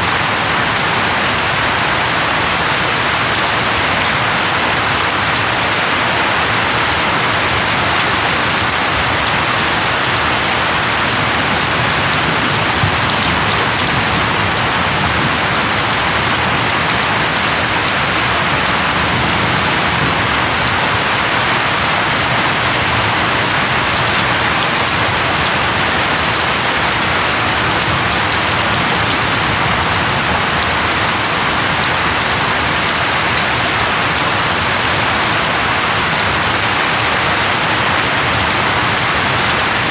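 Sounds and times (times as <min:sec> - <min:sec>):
steady rain hiss: 0:00.0 - 0:39.9
raindrop patters: 0:07.2 - 0:35.2.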